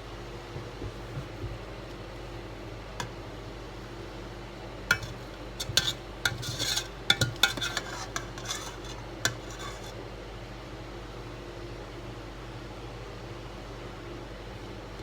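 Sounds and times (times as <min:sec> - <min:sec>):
steady background hum: 0:00.0 - 0:15.0
metal utensil scraping cookware: 0:04.9 - 0:10.0.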